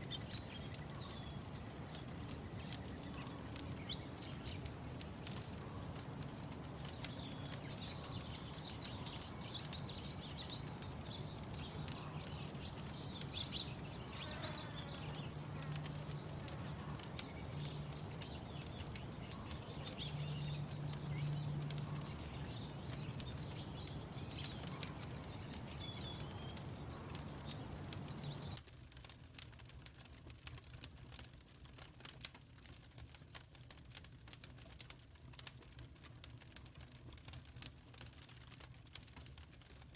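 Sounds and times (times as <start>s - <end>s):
birds chirping and singing: 0.0s - 28.6s
wood fire crackling and popping: 0.0s - 39.9s.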